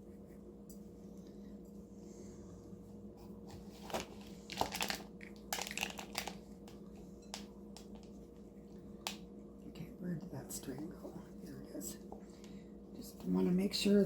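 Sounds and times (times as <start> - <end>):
crunching birdseed rustles: 3.8 - 6.4.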